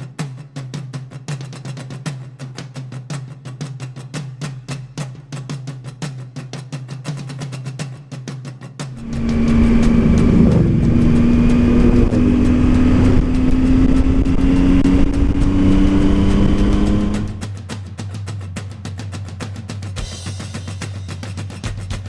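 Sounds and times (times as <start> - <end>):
wind noise: 9.0 - 17.4
motorcycle engine running: 9.0 - 17.6.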